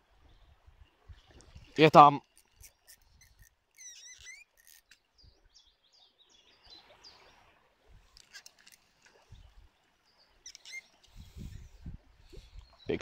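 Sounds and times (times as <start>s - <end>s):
faint bird chirps: 2.6s - 7.4s, 9.2s - 13.0s.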